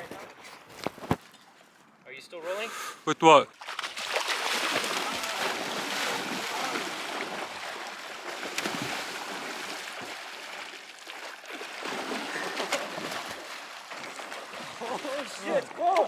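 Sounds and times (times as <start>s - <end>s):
flowing water rushing: 3.2s - 16.0s.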